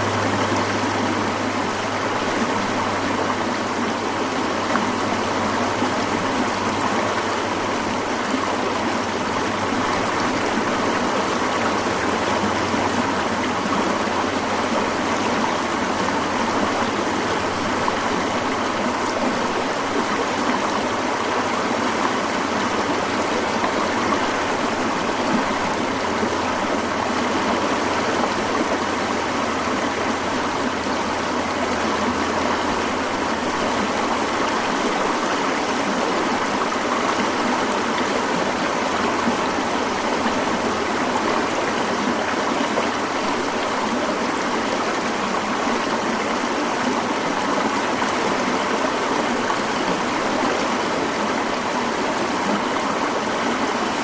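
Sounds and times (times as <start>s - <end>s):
mountain stream flowing: 0.0s - 54.0s.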